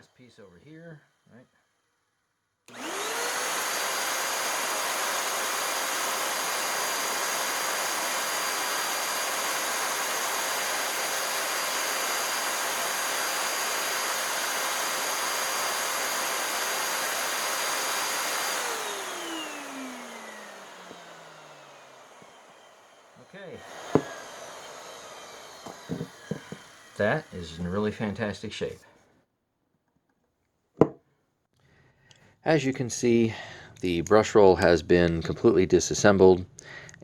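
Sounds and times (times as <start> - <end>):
vacuum cleaner motor whine: 2.7 - 28.2.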